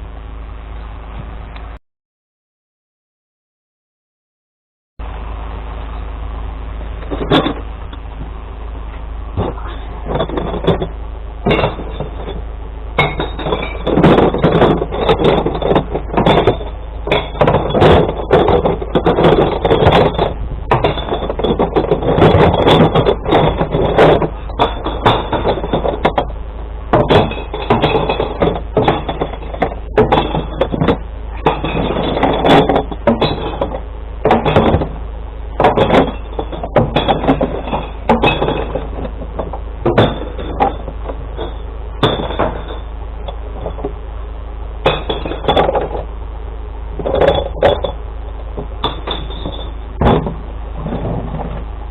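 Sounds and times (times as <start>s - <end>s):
truck engine rumble: 0.0s - 1.8s, 5.0s - 51.9s
glass bottles clattering and smashing: 9.4s - 12.4s, 13.0s - 35.0s, 35.6s - 43.9s, 44.8s - 46.1s, 47.0s - 48.0s, 48.6s - 51.6s.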